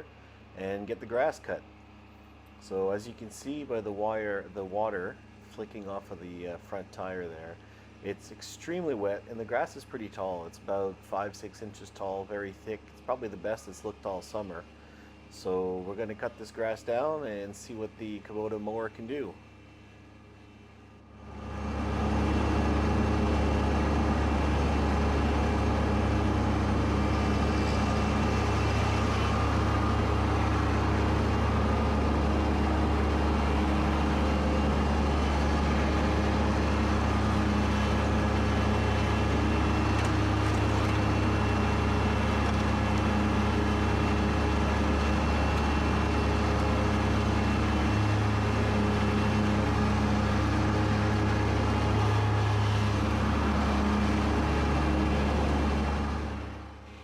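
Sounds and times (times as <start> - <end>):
tractor diesel engine running: 21.0 - 57.0.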